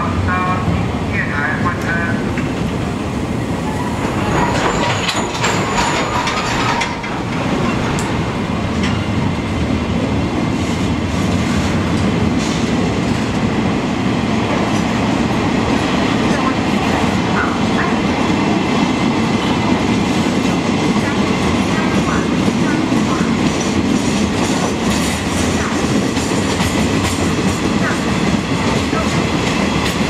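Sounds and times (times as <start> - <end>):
freight train rumble and clatter: 0.0 - 30.0
train wheel squeal: 3.7 - 6.9.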